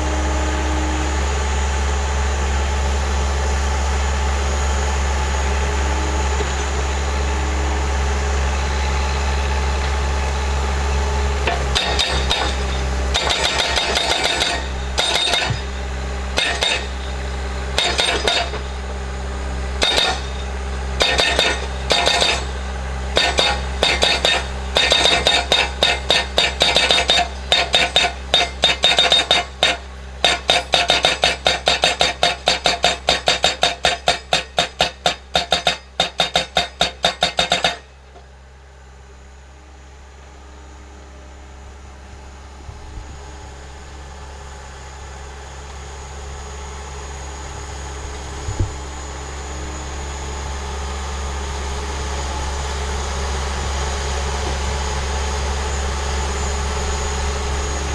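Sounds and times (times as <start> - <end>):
skid steer engine running: 0.0 - 57.9
post driver metallic hammering: 11.4 - 38.0.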